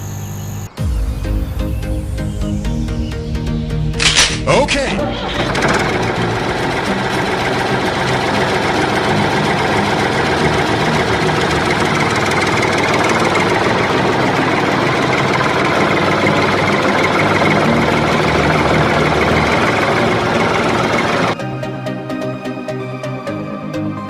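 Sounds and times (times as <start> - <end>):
small electric motor running: 5.4 - 21.4.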